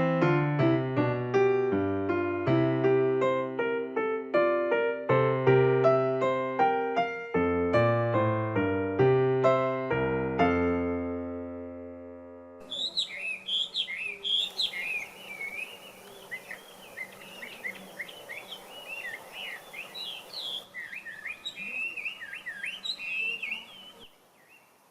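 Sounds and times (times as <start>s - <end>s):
piano music: 0.0s - 12.7s
songbird whistling varied phrases: 12.6s - 24.6s.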